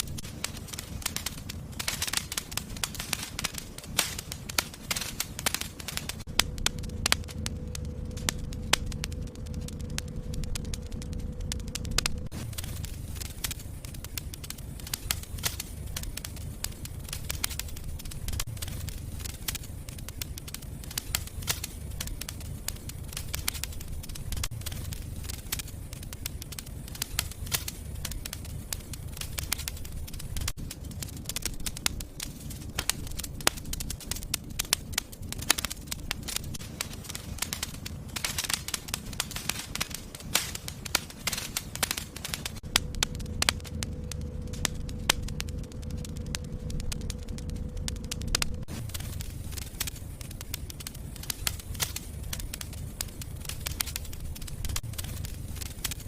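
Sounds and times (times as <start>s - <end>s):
low rumble of flame: 0.0s - 56.0s
wood fire crackling: 0.0s - 56.0s.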